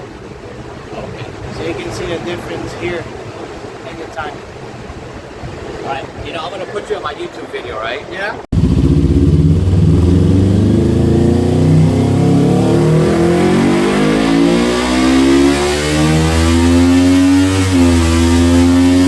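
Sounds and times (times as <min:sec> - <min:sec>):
motorcycle engine revving on dynamometer: 0:08.5 - 0:19.0.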